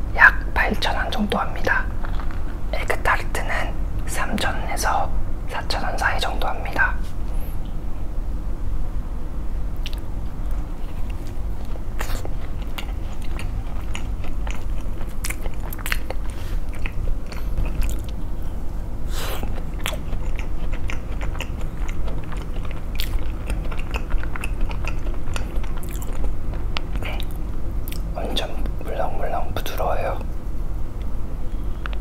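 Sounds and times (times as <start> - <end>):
steady low hum: 0.0 - 32.0
crunching pastry crust: 9.8 - 18.3
person chewing: 9.8 - 28.9.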